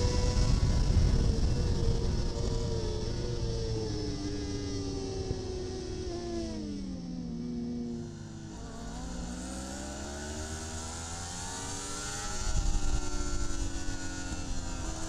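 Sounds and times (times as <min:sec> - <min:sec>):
superbike engine revving: 0:00.0 - 0:15.0.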